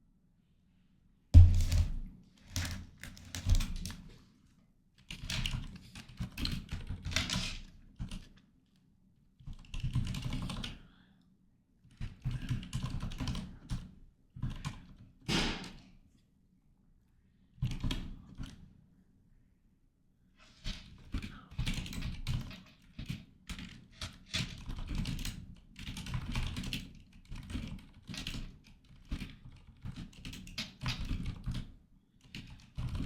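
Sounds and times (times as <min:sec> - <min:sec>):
typing on computer keyboard: 0:01.4 - 0:04.0, 0:05.0 - 0:08.4, 0:09.4 - 0:10.8, 0:11.9 - 0:15.1, 0:17.6 - 0:18.6, 0:20.8 - 0:33.0.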